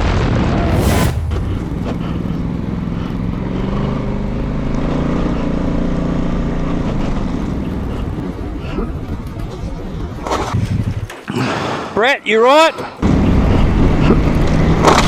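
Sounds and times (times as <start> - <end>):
wind rumble: 0.0 - 11.1
motorcycle engine running: 0.6 - 11.1.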